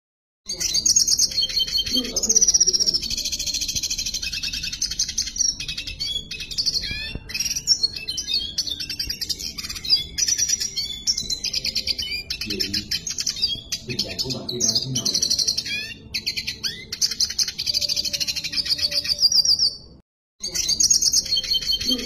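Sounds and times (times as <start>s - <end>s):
bird singing buzzy trills: 0.5s - 22.0s.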